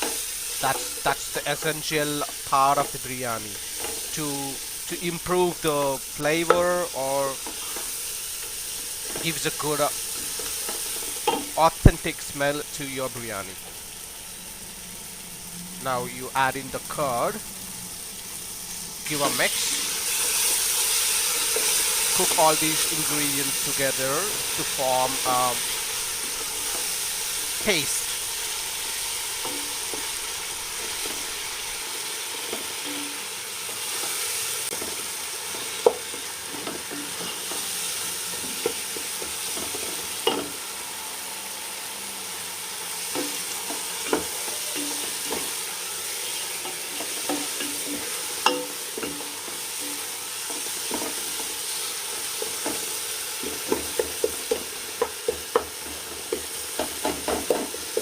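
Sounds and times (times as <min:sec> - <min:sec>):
paste sizzling in oil: 0:00.0 - 0:58.0
utensil knocking against pot: 0:47.3 - 0:50.0.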